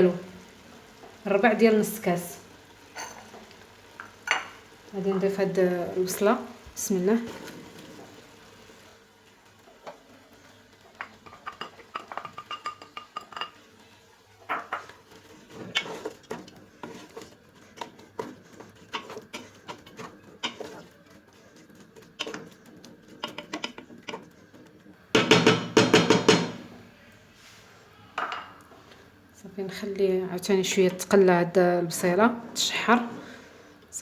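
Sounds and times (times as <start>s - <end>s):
spoon scraping metal pot: 14.5s - 25.0s.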